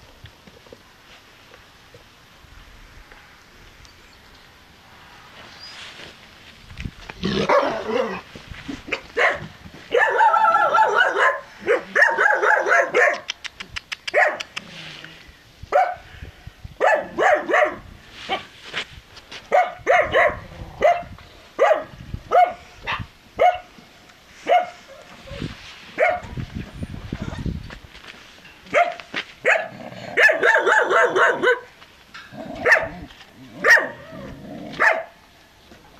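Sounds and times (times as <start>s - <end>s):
puppies barking and yipping: 8.9s - 13.5s.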